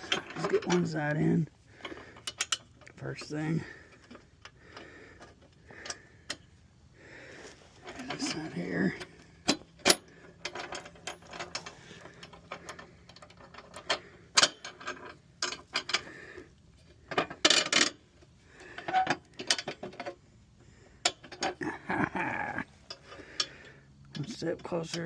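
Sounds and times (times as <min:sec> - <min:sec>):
metal parts clanking and scraping: 0:00.0 - 0:06.4, 0:07.8 - 0:16.2, 0:16.8 - 0:18.0, 0:18.6 - 0:20.2, 0:21.0 - 0:21.7.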